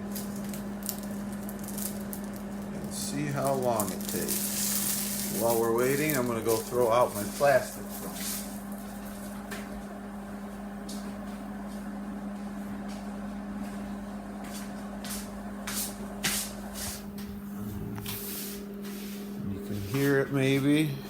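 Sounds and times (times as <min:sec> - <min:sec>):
popcorn popping clicks: 0:00.0 - 0:08.8
microwave oven humming: 0:00.0 - 0:21.0.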